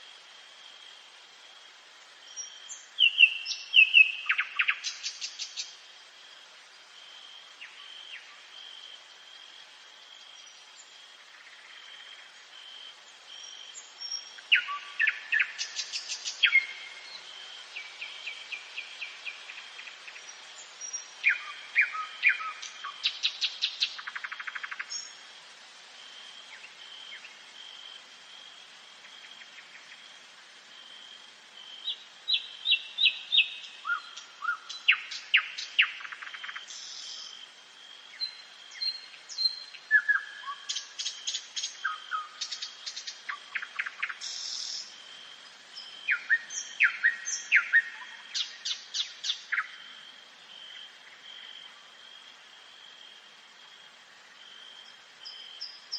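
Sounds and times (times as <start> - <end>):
nightingale singing: 2.0 - 5.8, 10.1 - 25.2, 31.5 - 45.1, 45.7 - 51.8, 54.4 - 55.9.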